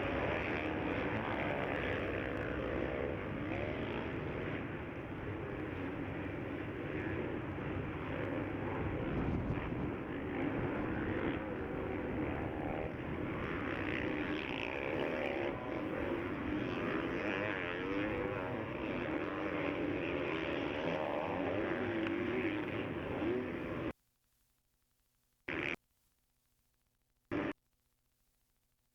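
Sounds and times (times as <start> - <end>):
motocross engines revving: 0.0 - 23.9.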